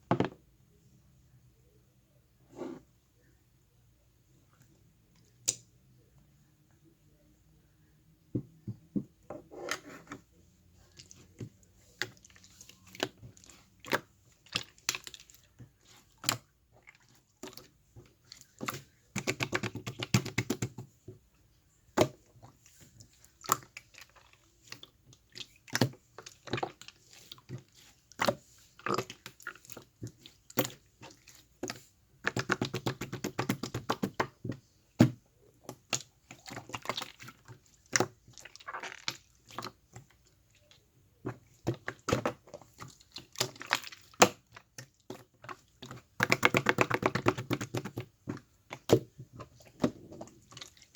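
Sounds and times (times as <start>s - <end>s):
slime crackling squelches: 35.6s - 50.9s.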